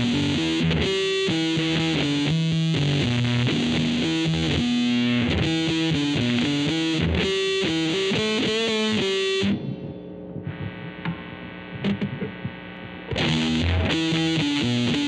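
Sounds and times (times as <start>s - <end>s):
distorted electric guitar riff: 0.0s - 15.0s
faint amp hum: 0.0s - 15.0s.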